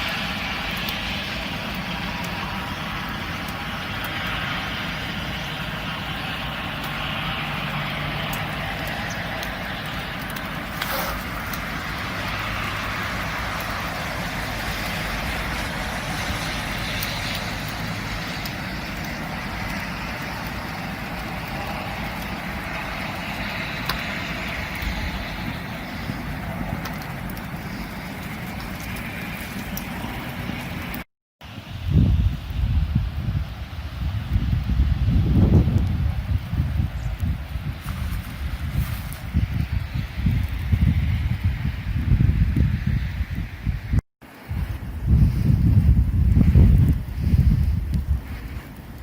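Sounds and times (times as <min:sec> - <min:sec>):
road noise: 0:00.0 - 0:49.0
vehicle engine rumble: 0:00.0 - 0:49.0.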